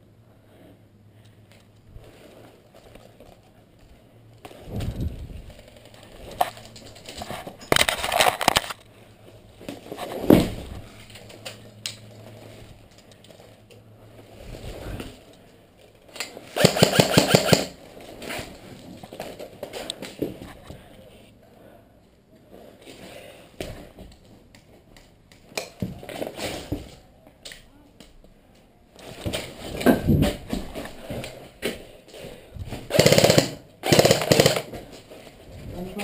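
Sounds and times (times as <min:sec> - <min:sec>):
airsoft rifle firing bursts: 0:16.6 - 0:17.8, 0:32.9 - 0:34.8.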